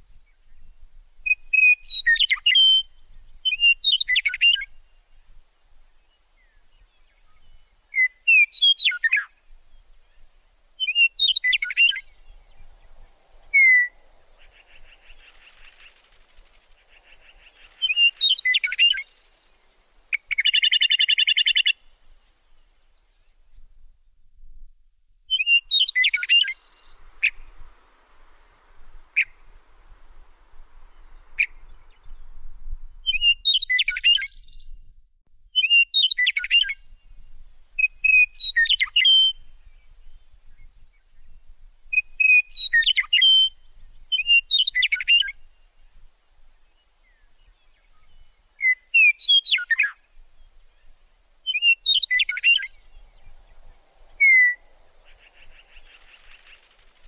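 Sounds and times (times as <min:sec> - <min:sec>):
bird singing chirping phrases: 0:06.2 - 0:23.3, 0:25.3 - 0:29.6, 0:33.0 - 0:34.8, 0:35.6 - 0:37.1, 0:37.8 - 0:40.6, 0:41.2 - 0:45.9, 0:46.7 - 0:57.0.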